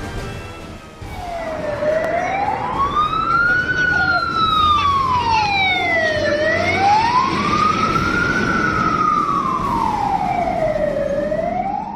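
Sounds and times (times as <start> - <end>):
emergency siren wailing: 1.0 - 11.9
second siren tone gliding down: 1.1 - 11.9.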